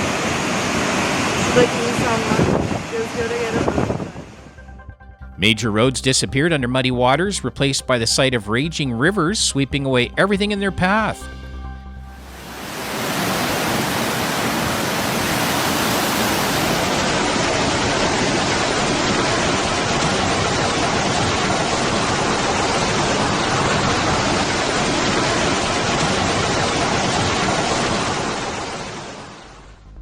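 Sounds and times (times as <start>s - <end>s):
floodwater rushing: 0.0s - 3.8s, 12.2s - 29.5s.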